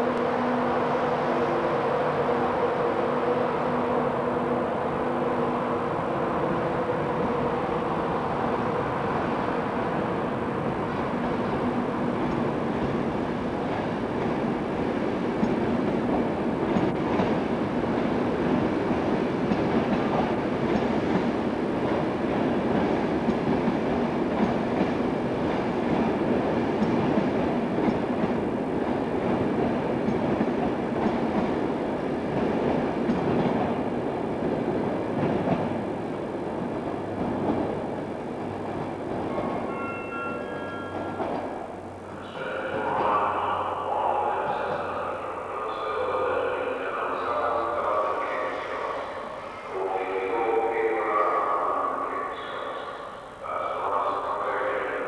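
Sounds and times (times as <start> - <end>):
train wheels clicking over rail joints: 19.4 - 28.4, 29.2 - 31.6.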